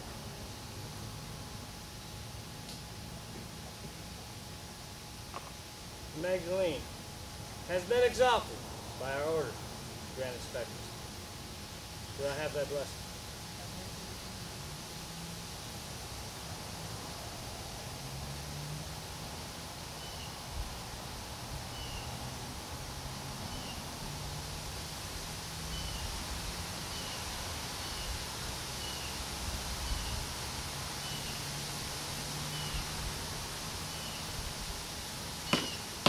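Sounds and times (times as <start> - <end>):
outdoor background hiss: 0.0 - 36.0
bird chirping: 32.5 - 32.9, 35.4 - 35.9.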